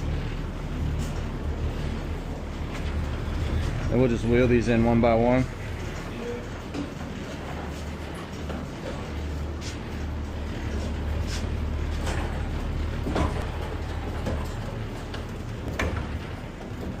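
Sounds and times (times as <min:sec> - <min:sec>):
truck humming: 0:00.0 - 0:17.0
pallets knocking and clattering: 0:10.8 - 0:17.0.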